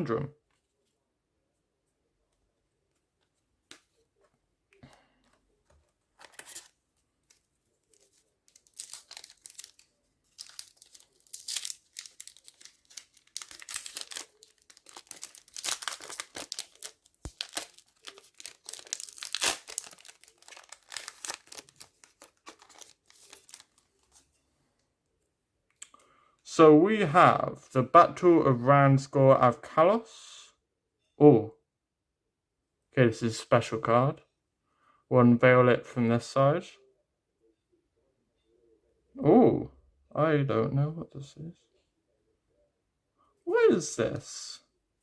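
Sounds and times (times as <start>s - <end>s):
cards being handled: 5.2s - 24.4s
wrapper tearing and crinkling: 6.2s - 6.7s, 7.9s - 24.1s.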